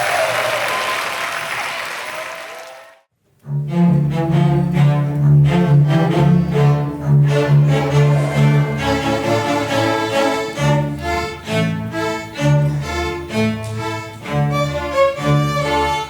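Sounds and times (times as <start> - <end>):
applause: 0.0 - 3.0
low cello and bass notes: 3.3 - 16.0
string orchestra playing: 3.3 - 16.0.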